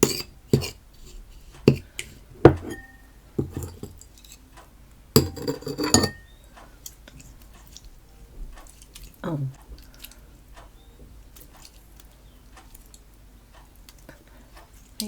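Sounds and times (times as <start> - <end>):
spoon knocking against bowl: 0.0 - 0.8, 1.7 - 1.9, 2.5 - 4.0, 5.2 - 6.3.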